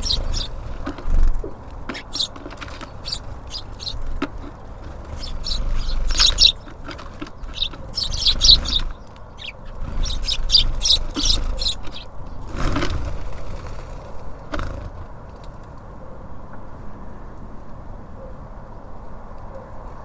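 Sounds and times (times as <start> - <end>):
rustling: 0.0 - 14.9
low background rumble: 0.0 - 15.6
songbirds chirping: 0.0 - 15.8.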